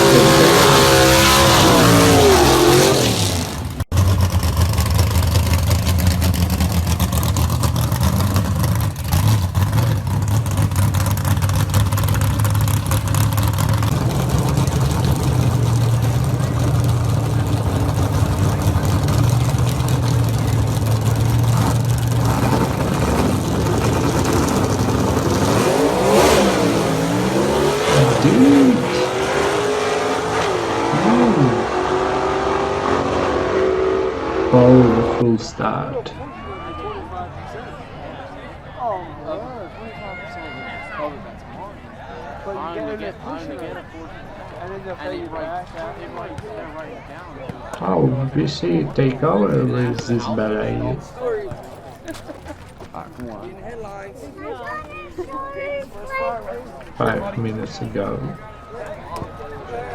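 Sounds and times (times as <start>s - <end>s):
deep engine idling: 0.0s - 29.8s
drag car engine revving: 0.0s - 36.1s, 57.0s - 58.4s.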